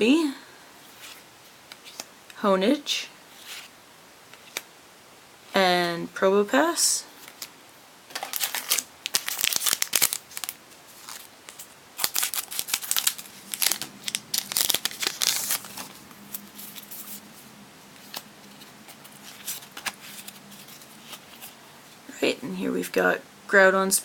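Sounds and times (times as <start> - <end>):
foil pack tearing and crinkling: 8.1 - 16.0.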